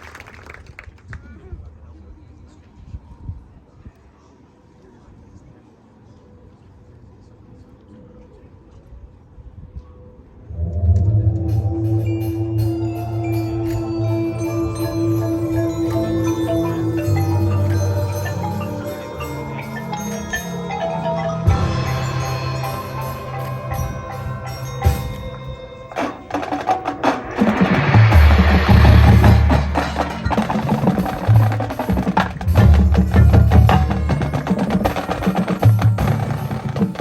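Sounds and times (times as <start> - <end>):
mallet percussion playing: 11.3 - 37.0
low drum hit: 27.0 - 35.0.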